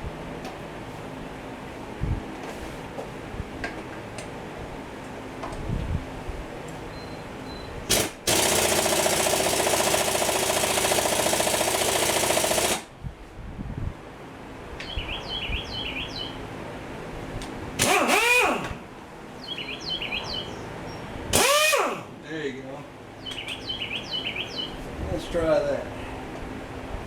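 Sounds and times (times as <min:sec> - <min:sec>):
faint bird chirps: 0:06.9 - 0:07.8, 0:14.8 - 0:16.4, 0:19.4 - 0:21.1, 0:23.2 - 0:24.8
impact wrench hammering: 0:17.8 - 0:18.8, 0:21.4 - 0:22.1.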